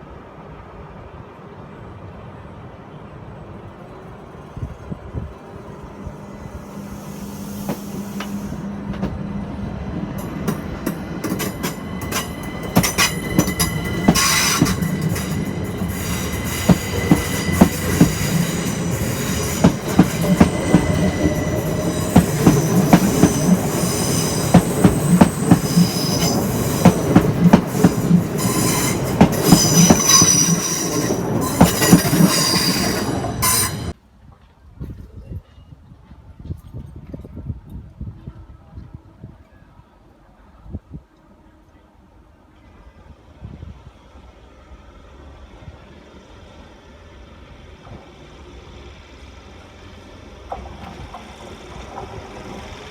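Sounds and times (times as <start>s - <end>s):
train rolling on rails: 0.0s - 34.7s, 36.0s - 52.9s
wheels clicking over rail joints: 7.6s - 33.4s, 50.3s - 52.9s
high-pitched wheel squeal: 10.4s - 34.0s.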